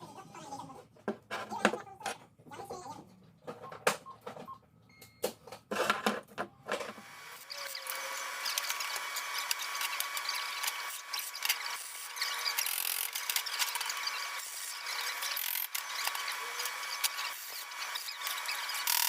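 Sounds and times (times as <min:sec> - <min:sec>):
power tool grinding: 0:06.9 - 0:19.0
motor whine: 0:07.0 - 0:19.0.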